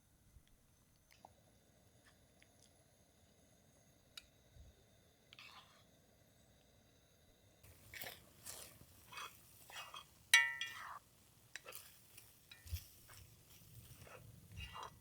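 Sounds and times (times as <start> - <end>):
tableware clinking: 9.1 - 11.0
sharp ringing clink: 10.4 - 10.9.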